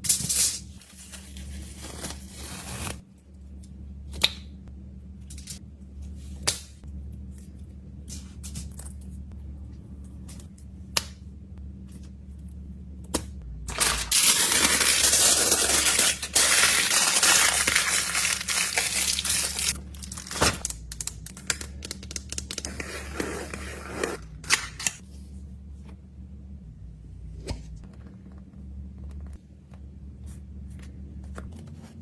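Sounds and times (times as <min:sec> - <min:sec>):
plastic crinkling and tearing: 0:13.7 - 0:22.7
plastic packaging clicks: 0:13.7 - 0:22.7.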